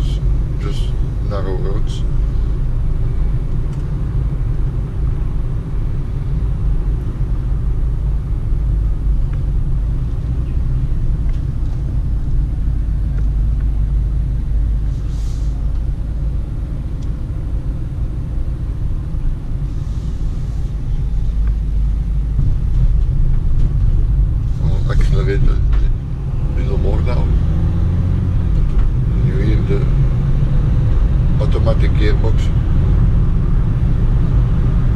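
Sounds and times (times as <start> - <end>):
engine and tyres rumbling: 0.0 - 34.9
faint brief hisses: 14.9 - 15.6.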